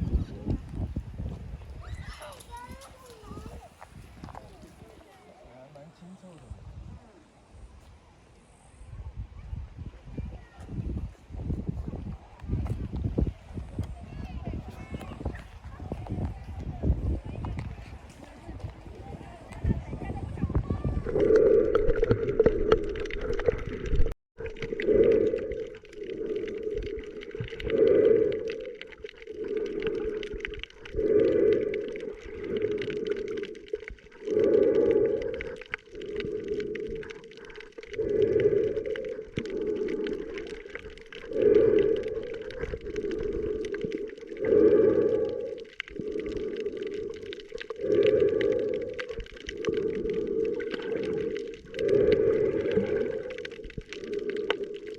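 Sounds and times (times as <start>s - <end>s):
breathing through a snorkel: 24.8s - 54.9s.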